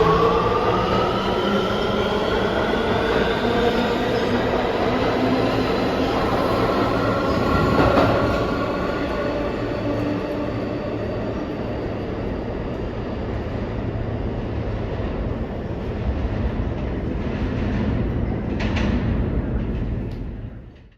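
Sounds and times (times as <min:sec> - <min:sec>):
subway train wheels rumbling on rails: 0:00.0 - 0:20.9.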